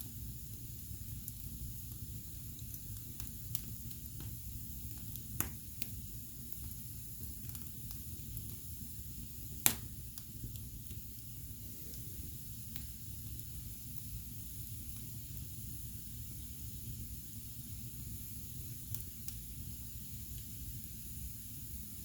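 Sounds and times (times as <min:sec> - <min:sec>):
fire crackling: 0:00.0 - 0:22.0
sharp fire pops: 0:02.7 - 0:06.8, 0:09.4 - 0:10.7.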